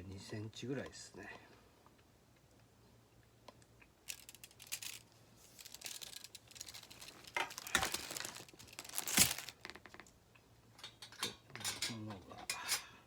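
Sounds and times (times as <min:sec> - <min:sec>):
metal fire pit parts clinking: 0:05.6 - 0:09.5, 0:10.8 - 0:13.0.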